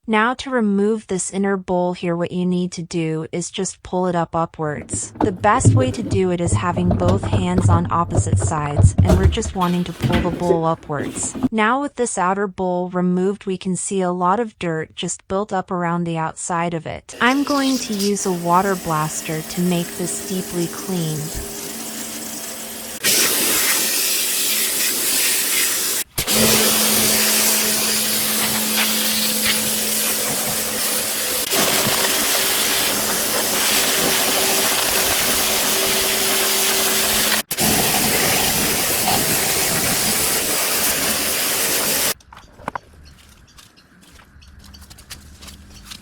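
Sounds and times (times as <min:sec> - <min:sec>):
pressure washer spraying: 0:04.8 - 0:11.5, 0:17.2 - 0:42.2
pump motor humming: 0:04.8 - 0:11.5, 0:17.2 - 0:42.2.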